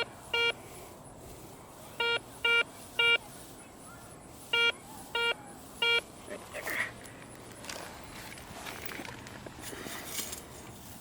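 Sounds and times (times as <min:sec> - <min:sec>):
metal detector short beeps: 0:00.0 - 0:00.6, 0:02.0 - 0:03.2, 0:04.5 - 0:06.1.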